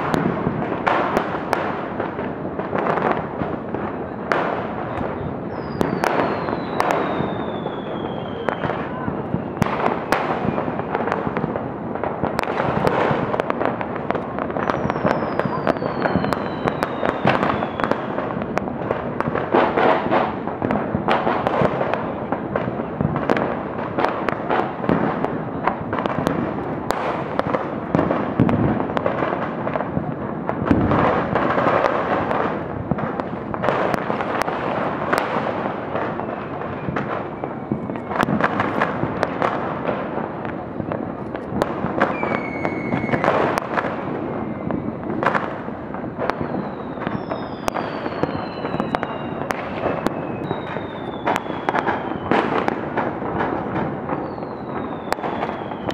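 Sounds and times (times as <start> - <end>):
fireworks and firecrackers banging: 0.0 - 55.9
firework whistles gliding down: 2.9 - 11.4, 12.3 - 18.4, 24.7 - 27.7, 33.7 - 39.6, 41.9 - 55.9.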